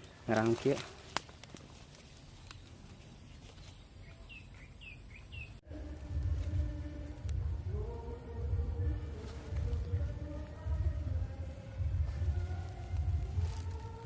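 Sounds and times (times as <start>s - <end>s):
quiet outdoor ambience: 0.0s - 14.0s
bird chirping: 2.2s - 5.6s
low pulsing sound: 5.7s - 14.0s.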